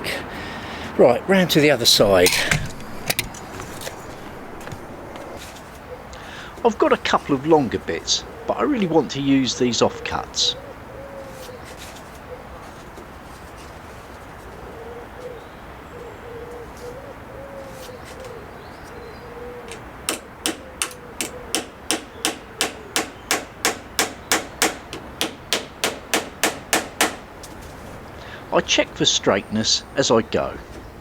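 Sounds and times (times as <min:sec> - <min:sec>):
pigeon cooing: 0:01.9 - 0:23.2, 0:27.8 - 0:31.0
hammer driving nails into wood: 0:02.0 - 0:05.4, 0:19.7 - 0:27.3.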